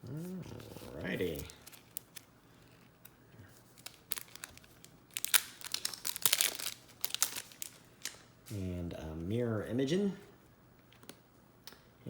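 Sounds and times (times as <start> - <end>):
foil wrapper crinkling: 0.6 - 8.3.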